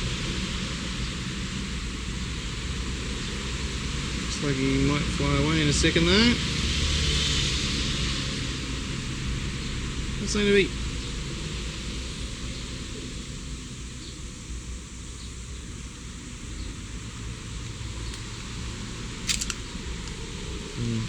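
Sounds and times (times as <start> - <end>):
steady background hiss: 0.0 - 21.0
sharp clicks: 18.0 - 18.5, 19.2 - 20.3.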